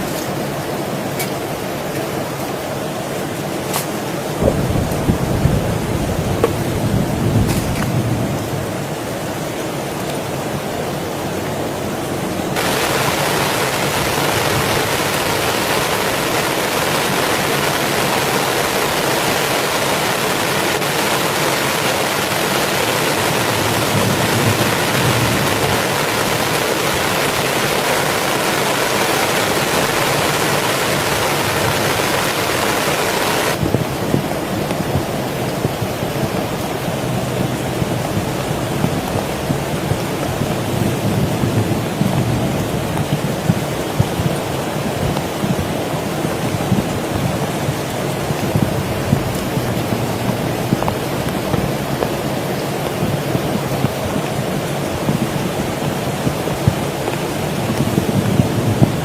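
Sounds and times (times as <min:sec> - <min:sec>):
heavy rain falling: 0:00.0 - 0:59.0
rain drop ticks: 0:41.9 - 0:52.2.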